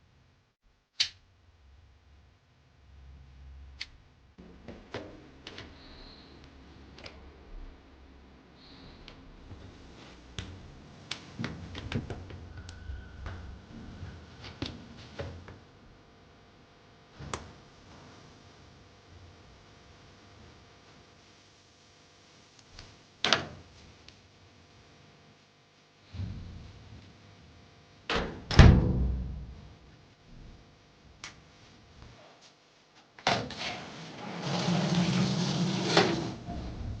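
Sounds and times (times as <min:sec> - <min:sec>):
washing machine rushing with hum: 0:33.3 - 0:37.0.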